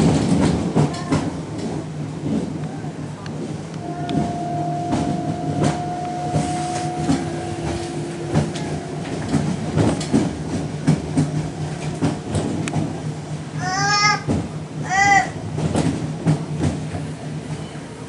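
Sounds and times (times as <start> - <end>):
train running rumble: 0.0 - 18.0
steady high whine: 3.7 - 10.1
wheels clacking over rail joints: 4.0 - 17.7.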